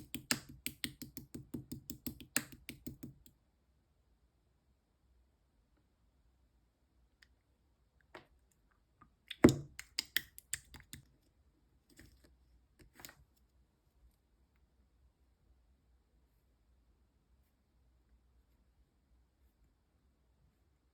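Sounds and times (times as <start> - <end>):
slime squeezed with wet clicks and pops: 9.3 - 11.0.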